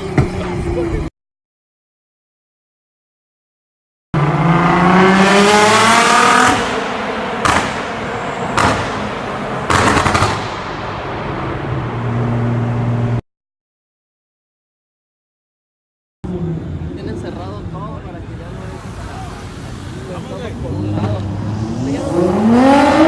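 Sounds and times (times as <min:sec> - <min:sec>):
car engine starting and revving: 0:04.2 - 0:13.2, 0:18.4 - 0:23.0.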